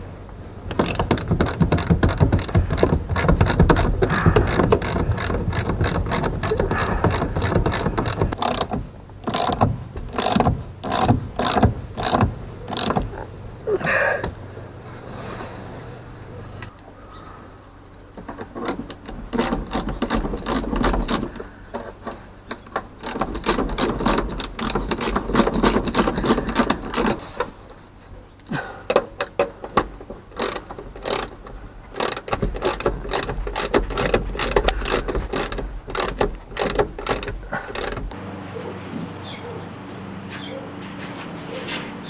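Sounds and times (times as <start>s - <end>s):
ratchet wrench clicking: 0.7s - 13.0s, 17.9s - 27.2s, 28.9s - 38.2s.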